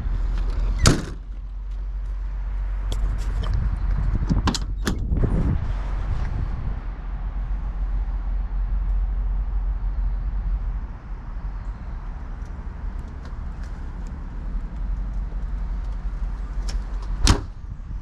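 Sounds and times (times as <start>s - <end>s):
steady low rumble: 0.0s - 18.0s
truck door latch clicks: 4.3s - 5.1s, 16.6s - 17.5s.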